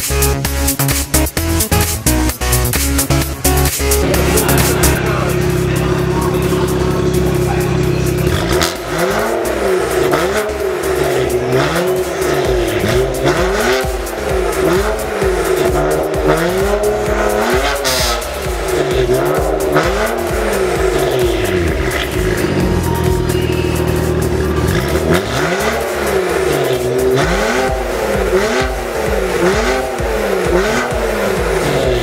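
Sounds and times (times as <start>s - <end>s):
car engine revving: 0.0s - 32.0s
electronic music: 0.0s - 32.0s.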